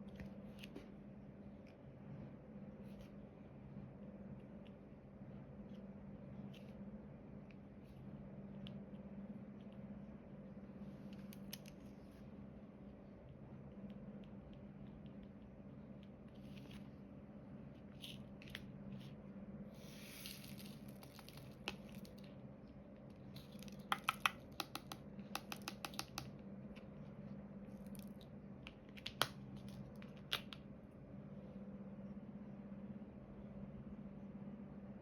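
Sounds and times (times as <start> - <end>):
light sharp clicks and taps: 23.6 - 26.9.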